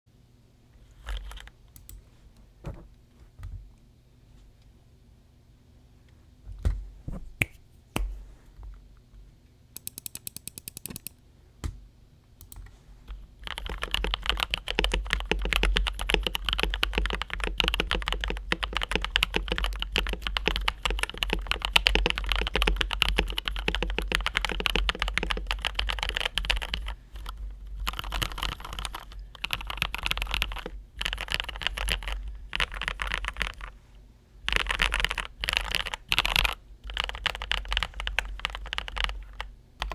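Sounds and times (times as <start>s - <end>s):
mechanical keyboard typing: 9.8s - 11.2s, 13.4s - 33.7s, 34.4s - 39.9s.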